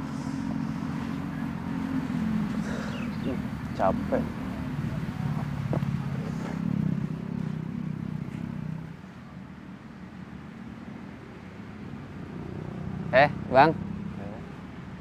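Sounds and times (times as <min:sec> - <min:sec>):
vehicle engine running: 0:00.0 - 0:09.3.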